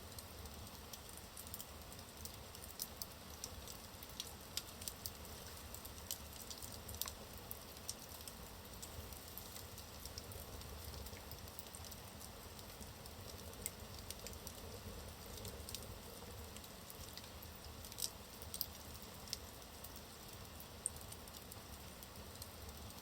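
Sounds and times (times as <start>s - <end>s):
fire crackles and pops: 0.0s - 23.0s
logs burning in fireplace: 0.0s - 23.0s.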